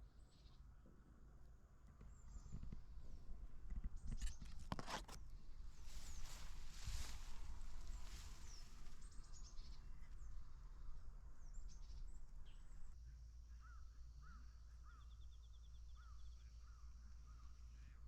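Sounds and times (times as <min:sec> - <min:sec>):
birds chirping: 0:05.6 - 0:13.0.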